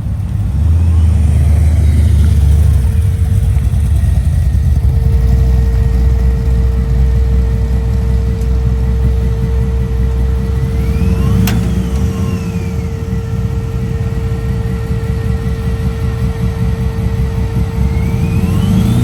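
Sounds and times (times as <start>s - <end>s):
car engine running: 0.0s - 19.0s
sharp click: 11.3s - 12.2s.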